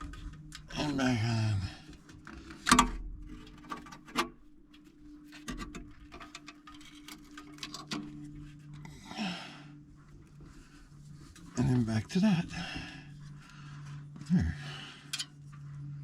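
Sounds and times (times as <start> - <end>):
wire clicking and scraping on metal: 1.9 - 8.9.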